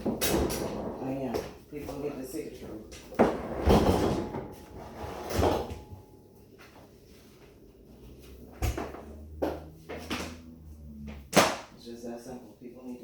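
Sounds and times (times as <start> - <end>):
drawer scraping: 3.2 - 6.0.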